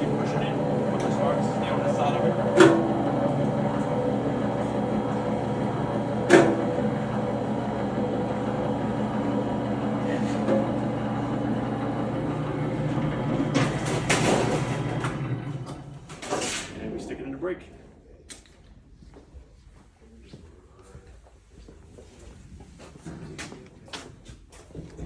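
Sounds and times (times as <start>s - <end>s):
metal forming machine humming: 0.0s - 17.0s.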